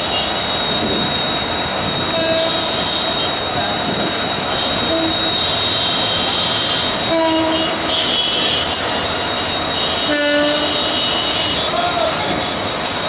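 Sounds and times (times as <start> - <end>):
high wheel squeal: 0.0 - 13.0
train wheels rumbling on rail: 0.0 - 13.0
train horn blasts: 2.1 - 3.3, 4.6 - 8.9, 9.7 - 11.8.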